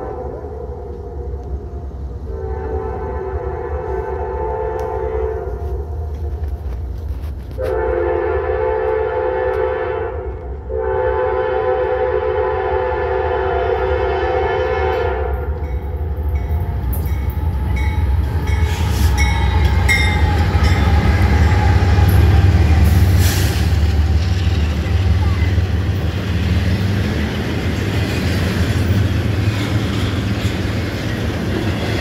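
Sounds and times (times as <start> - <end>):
locomotive engines rumbling: 0.0 - 32.0
train air horn blasts: 2.2 - 6.0, 7.6 - 15.6, 18.4 - 23.8
train wheels clattering over rail joints: 15.6 - 32.0.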